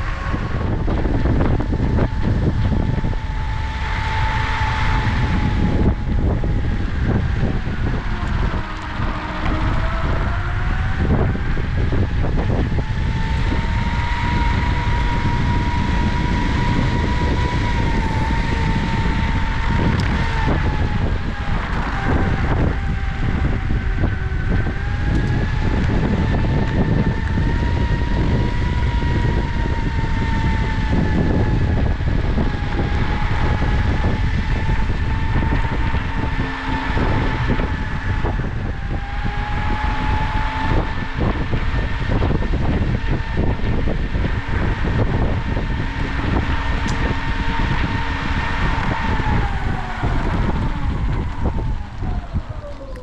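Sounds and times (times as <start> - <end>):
electric motors whining: 0.0 - 53.0
wheels rumbling on pavement: 0.0 - 53.0.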